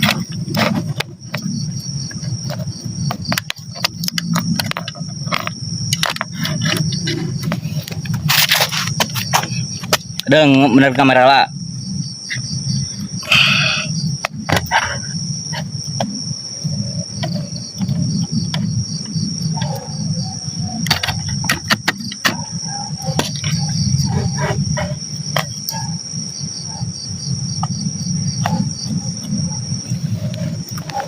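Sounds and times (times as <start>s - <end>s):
continuous high insect drone: 0.0s - 31.0s
crickets chirring: 0.0s - 31.0s
sharp clicks and knocks: 2.5s - 10.3s, 20.8s - 23.8s.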